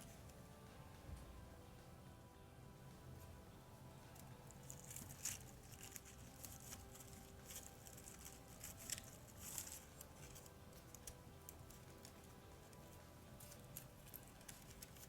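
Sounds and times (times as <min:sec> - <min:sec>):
dried flowers rustling and crackling: 0:04.1 - 0:15.0
stems snapping: 0:04.2 - 0:15.0.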